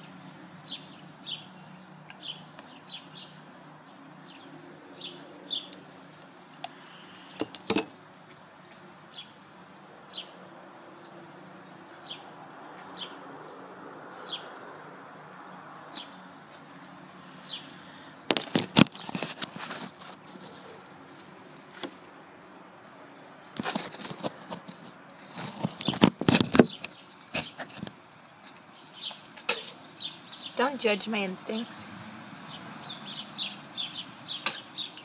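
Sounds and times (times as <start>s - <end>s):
bird chirping: 0.0s - 10.4s, 25.4s - 35.0s.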